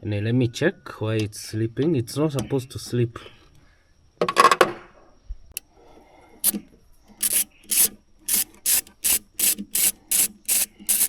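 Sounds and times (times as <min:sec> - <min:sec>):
ratchet wrench rasping: 0:07.2 - 0:11.0.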